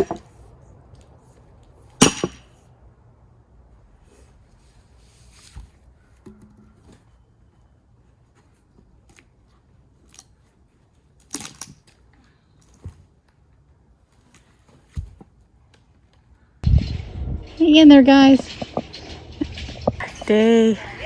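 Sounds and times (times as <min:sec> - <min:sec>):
scattered knocks and clicks: 0:16.6 - 0:20.4.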